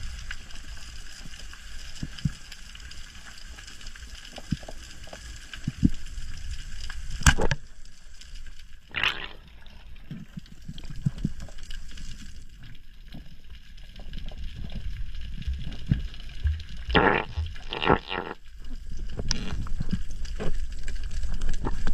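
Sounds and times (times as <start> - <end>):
underwater low rumble: 0.0 - 21.9
gurgling bubble bursts: 8.9 - 10.1, 14.4 - 20.6.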